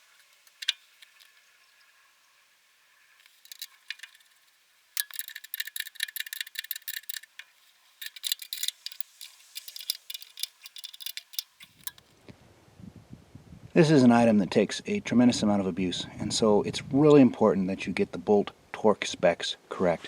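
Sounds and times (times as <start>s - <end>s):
metallic clinking of tools: 5.0s - 12.0s.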